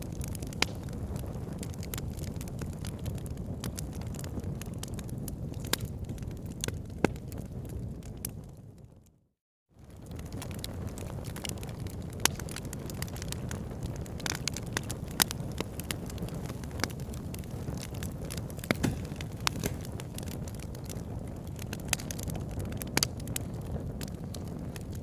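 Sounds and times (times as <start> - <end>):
fire crackles and pops: 0.0 - 9.1, 9.8 - 25.0
low rush of flame: 9.8 - 25.0.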